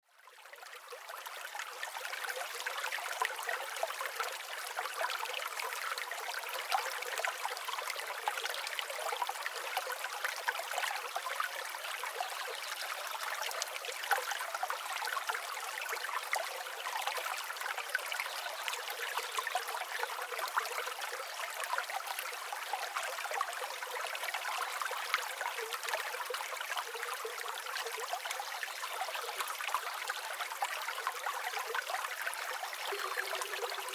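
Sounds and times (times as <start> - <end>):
stream water trickling: 0.1 - 33.9.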